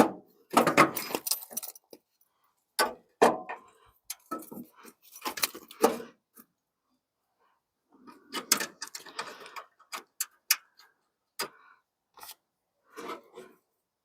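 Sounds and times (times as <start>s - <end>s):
small hard parts clicking and rattling: 0.6s - 2.1s, 8.1s - 11.6s.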